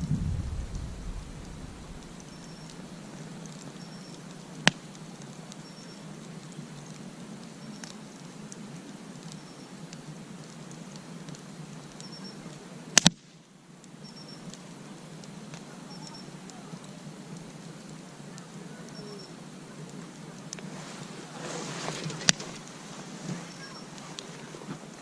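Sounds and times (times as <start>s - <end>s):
wood popping and cracking: 0.0s - 7.1s, 10.4s - 15.7s, 19.9s - 25.0s
campfire hissing: 0.0s - 25.0s.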